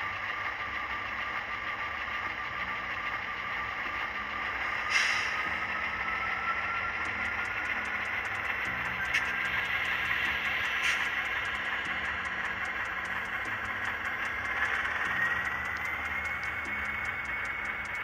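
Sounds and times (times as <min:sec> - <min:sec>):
model train diesel engine sound: 0:00.0 - 0:18.0
light rapid ticks: 0:07.0 - 0:18.0.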